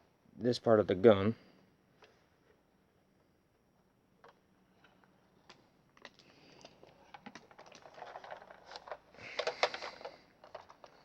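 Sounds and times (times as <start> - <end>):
plastic toy guns clicking and rattling: 5.5 - 11.0.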